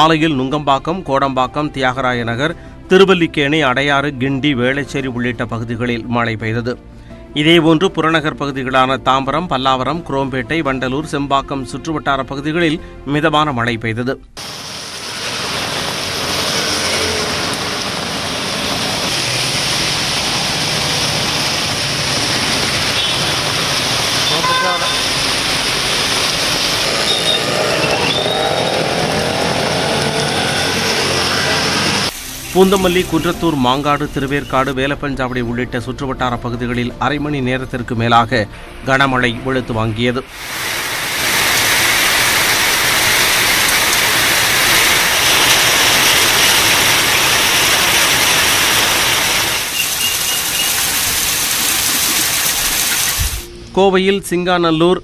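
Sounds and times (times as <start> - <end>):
motorbike engine buzzing: 14.4 - 32.1
traffic: 14.4 - 32.7, 41.2 - 53.7
heavy rain on street: 14.4 - 34.8, 40.3 - 53.5
short high squeals: 27.1 - 28.9, 49.6 - 50.9.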